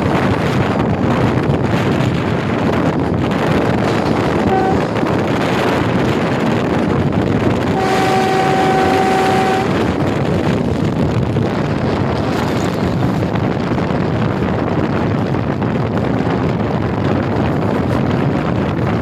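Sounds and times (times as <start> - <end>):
train running noise: 0.0 - 19.0
wind buffeting microphone: 0.0 - 19.0
train horn: 4.4 - 5.3, 7.7 - 10.0.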